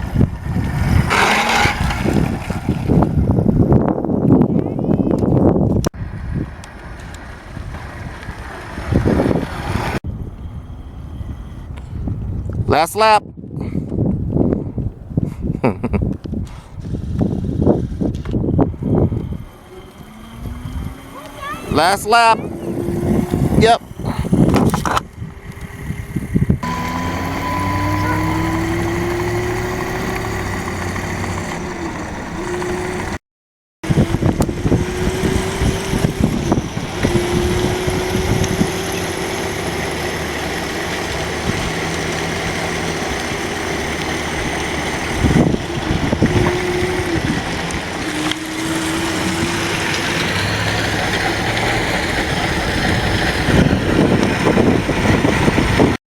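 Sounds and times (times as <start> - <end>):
low rumbling noise: 0.0 - 12.7
electric motorcycle motor whine: 0.1 - 3.8, 6.2 - 12.6, 16.8 - 33.2, 33.8 - 56.0.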